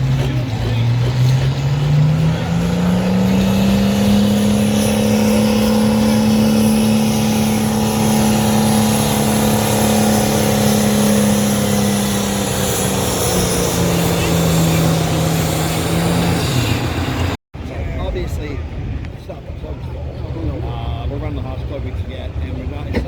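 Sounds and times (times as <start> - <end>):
vehicle engine revving at full throttle: 0.0 - 17.4.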